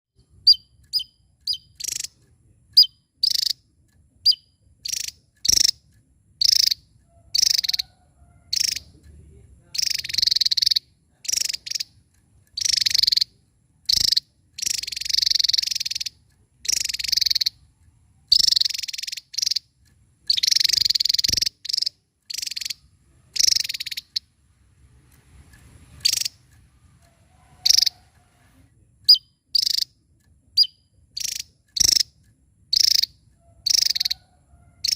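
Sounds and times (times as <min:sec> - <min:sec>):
bird singing whistles and trills: 0:00.4 - 0:02.1, 0:02.8 - 0:03.6, 0:04.3 - 0:05.8, 0:09.8 - 0:11.9, 0:18.3 - 0:19.7, 0:20.3 - 0:22.8, 0:23.4 - 0:24.3, 0:29.1 - 0:29.9, 0:30.6 - 0:32.1, 0:32.7 - 0:34.2.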